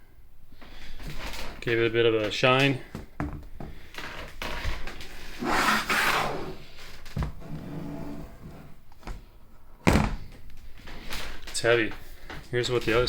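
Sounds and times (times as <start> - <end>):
metal plate scraping: 4.4 - 8.8.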